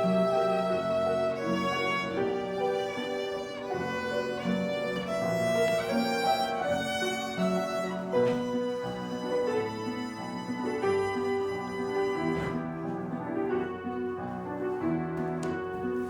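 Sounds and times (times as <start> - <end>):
violin melody: 0.0 - 16.0.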